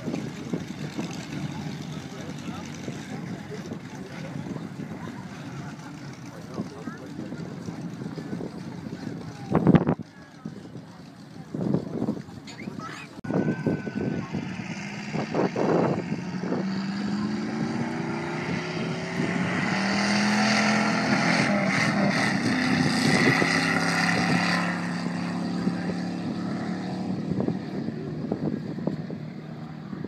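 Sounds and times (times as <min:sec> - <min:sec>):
car engine running: 0:00.0 - 0:30.0
wind buffeting microphone: 0:00.0 - 0:30.0.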